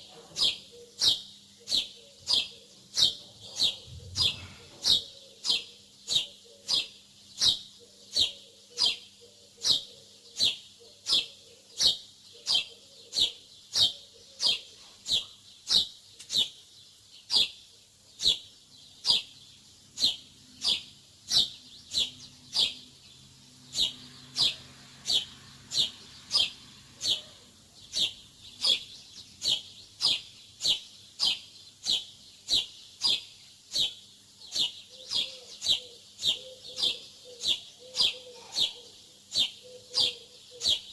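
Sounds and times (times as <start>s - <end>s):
small bird chirping: 0.0s - 40.9s.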